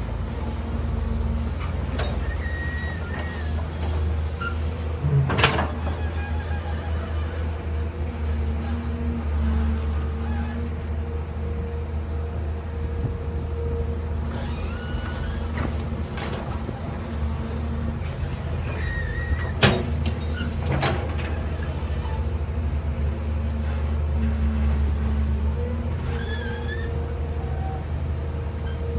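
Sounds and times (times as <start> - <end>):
diesel engine running: 0.0 - 28.9
short high squeals: 2.2 - 7.6, 14.3 - 15.6, 18.3 - 20.6, 26.0 - 28.9.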